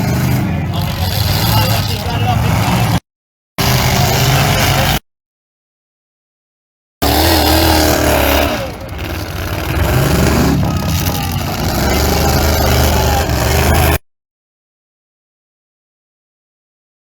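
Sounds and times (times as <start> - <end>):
car engines revving: 0.0 - 3.0, 3.6 - 5.0, 7.0 - 14.0.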